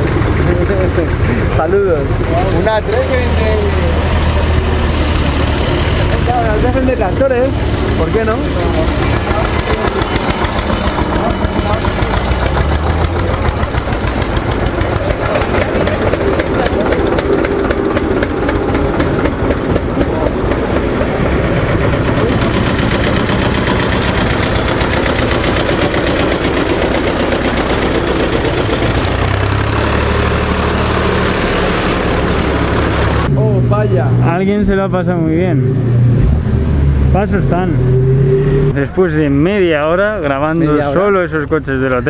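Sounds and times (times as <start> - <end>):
car engine running: 0.0 - 40.8.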